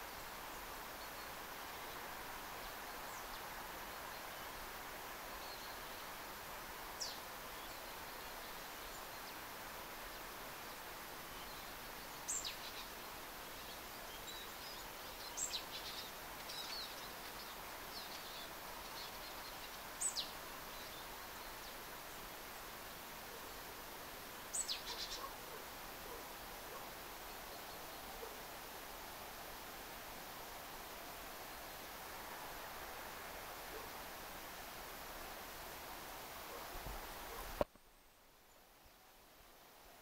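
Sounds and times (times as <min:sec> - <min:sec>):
forest ambience hiss: 0:00.0 - 0:40.0
songbird high calls: 0:24.5 - 0:28.4.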